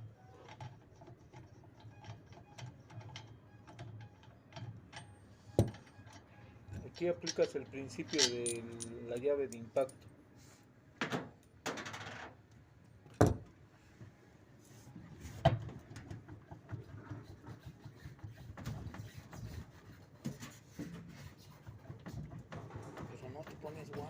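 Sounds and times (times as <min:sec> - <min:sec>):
tools clattering: 0:06.8 - 0:10.0
tools knocking on metal motor: 0:21.9 - 0:24.0.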